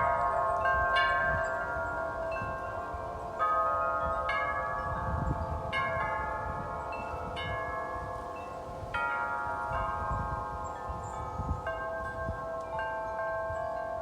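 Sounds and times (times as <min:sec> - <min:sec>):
low wind gusts rumbling: 0:00.0 - 0:12.8
wind chimes ringing: 0:00.0 - 0:14.0.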